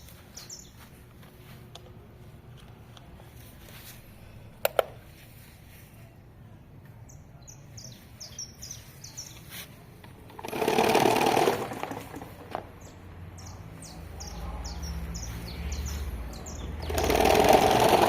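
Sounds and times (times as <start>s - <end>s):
small birds chirping: 0.0s - 2.0s, 2.7s - 10.4s, 11.6s - 18.0s
loud buzzing rattle: 10.2s - 12.9s, 16.8s - 18.0s.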